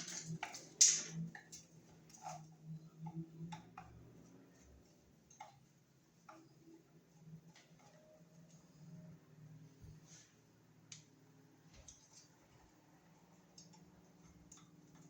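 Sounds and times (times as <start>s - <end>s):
tools clicking and knocking on wall: 0.0s - 4.2s.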